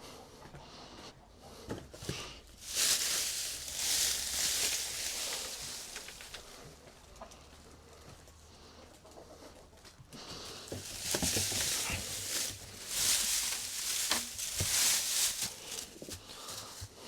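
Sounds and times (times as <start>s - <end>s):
chickens clucking: 0.1s - 16.7s
rustling and scraping: 1.6s - 7.4s, 10.2s - 17.0s.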